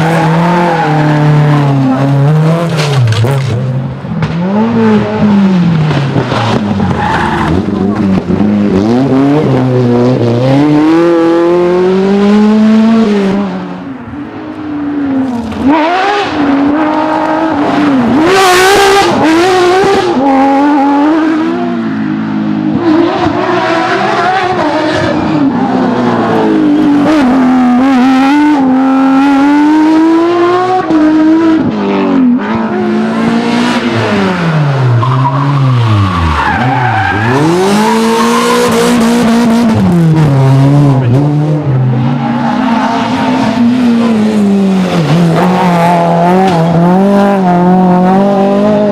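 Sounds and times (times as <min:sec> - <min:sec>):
rally car engines revving: 0:00.0 - 0:48.9
tyres skidding: 0:00.0 - 0:48.9.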